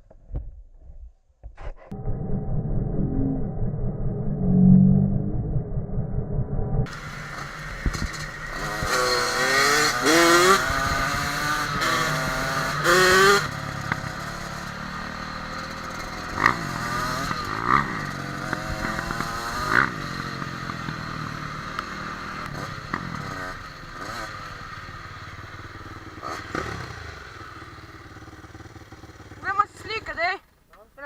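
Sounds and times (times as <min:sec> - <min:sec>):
dirt bike engine revving: 0:06.9 - 0:30.0.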